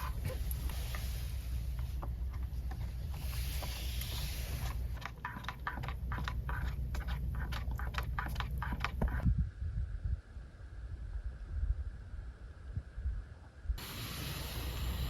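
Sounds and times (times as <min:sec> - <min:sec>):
wind rumbling on microphone: 0:07.5 - 0:13.8.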